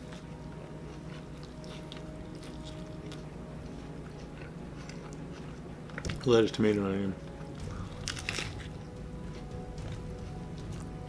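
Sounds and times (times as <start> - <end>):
low room hum: 0.0 - 11.0
man chewing food: 0.0 - 11.0.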